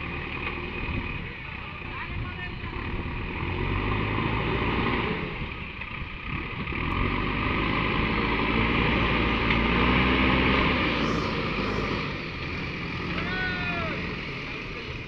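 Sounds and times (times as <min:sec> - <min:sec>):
large diesel engine running: 0:00.0 - 0:15.0.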